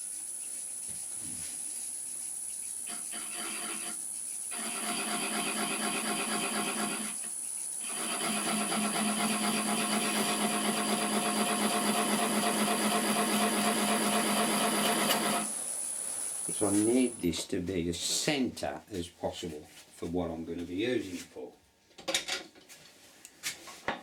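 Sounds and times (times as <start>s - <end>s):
wood lathe spinning: 0.1s - 17.2s
turning tool scraping wood: 0.2s - 15.6s, 16.2s - 17.3s.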